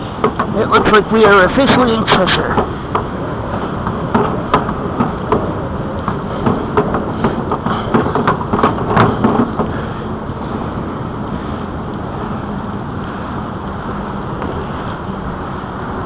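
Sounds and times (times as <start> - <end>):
bike rattling clicks and knocks: 0.0 - 10.0
bicycle rolling noise: 0.0 - 16.0
wind: 0.0 - 16.0.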